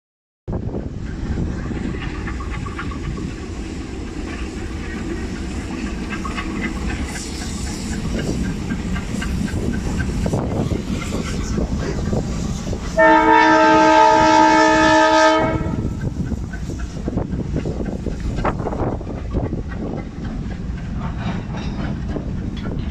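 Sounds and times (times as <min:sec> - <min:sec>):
diesel locomotive engines rumbling: 0:00.5 - 0:22.9
wheels clacking on rails: 0:00.5 - 0:22.9
locomotive horn blast: 0:13.0 - 0:15.9.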